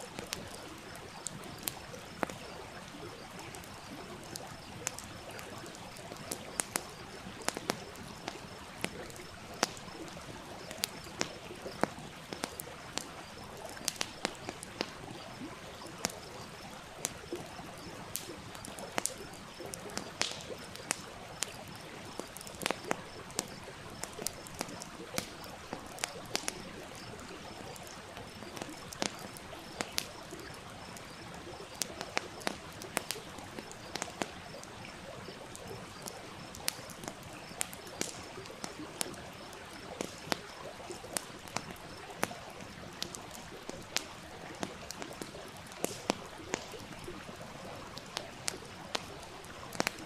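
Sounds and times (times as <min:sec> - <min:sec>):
wood fire crackling: 0:00.0 - 0:50.0.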